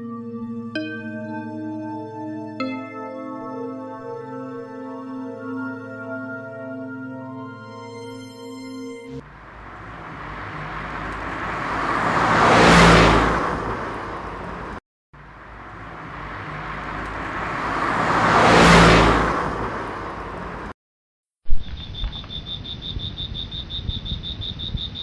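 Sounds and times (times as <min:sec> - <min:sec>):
vehicle passing by: 0:09.1 - 0:20.8.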